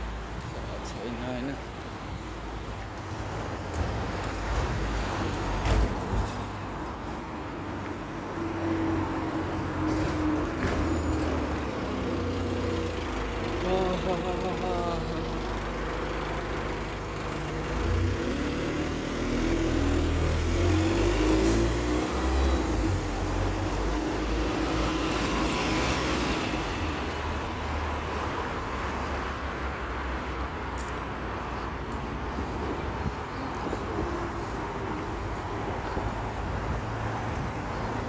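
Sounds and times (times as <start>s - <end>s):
hiss of passing cars: 14.8s - 38.0s.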